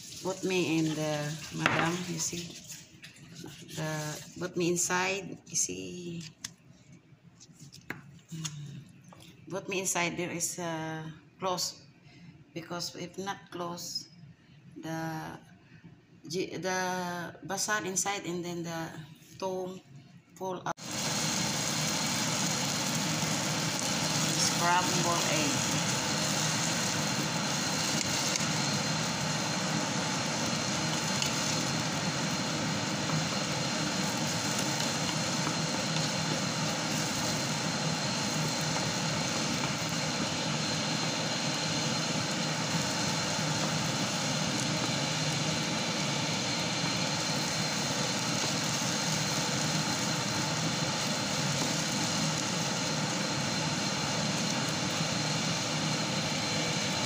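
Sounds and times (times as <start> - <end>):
air fryer fan whirring: 0.0 - 2.7, 20.8 - 57.0.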